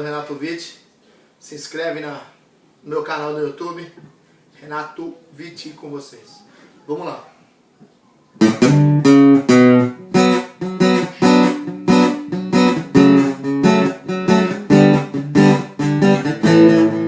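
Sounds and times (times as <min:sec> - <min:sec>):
acoustic guitar strumming chords: 0:08.4 - 0:17.0.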